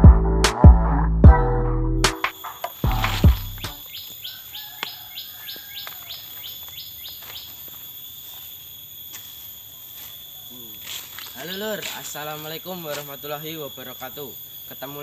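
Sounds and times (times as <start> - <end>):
high-pitched insect drone: 2.1 - 15.0
bird chirping: 2.4 - 7.8, 10.2 - 15.0.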